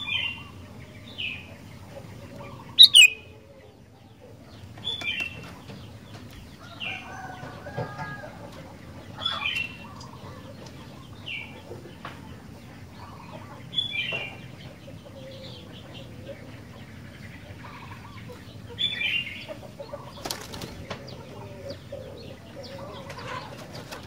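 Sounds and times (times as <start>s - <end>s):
bird chattering notes: 2.8s - 3.2s
bird whistled calls: 2.8s - 3.2s.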